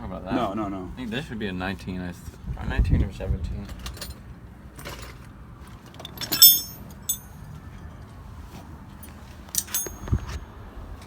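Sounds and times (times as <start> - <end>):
faint background noise: 0.0 - 11.0
metal tools clinking: 6.0 - 7.4, 9.5 - 10.4.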